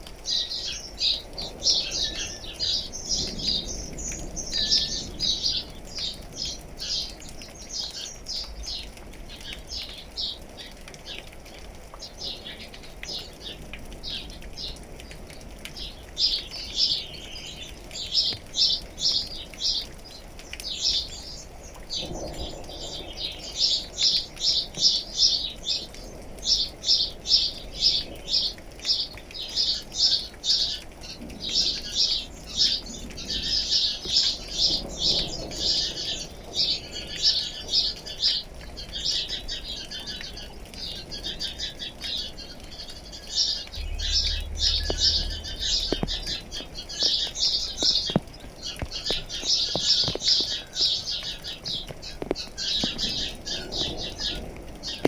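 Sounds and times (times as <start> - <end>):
birds chirping: 39.9 - 55.0.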